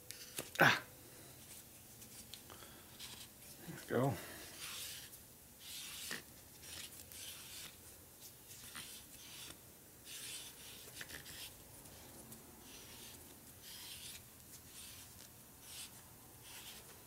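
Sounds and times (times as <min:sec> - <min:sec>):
hone stones scratching metal: 0:04.6 - 0:07.8, 0:10.1 - 0:17.0.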